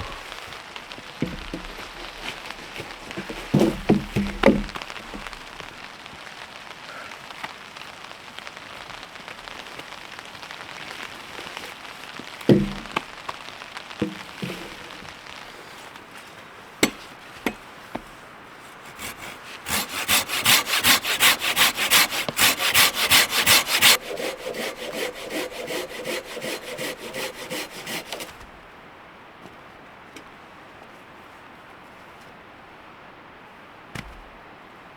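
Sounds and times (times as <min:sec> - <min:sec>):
hand saw cutting wood: 0:00.0 - 0:00.5, 0:01.2 - 0:05.4, 0:12.5 - 0:13.0, 0:14.0 - 0:15.1, 0:16.8 - 0:17.6, 0:18.7 - 0:28.5
knocks of wood being handled: 0:00.0 - 0:06.3, 0:10.7 - 0:28.7, 0:33.9 - 0:34.5.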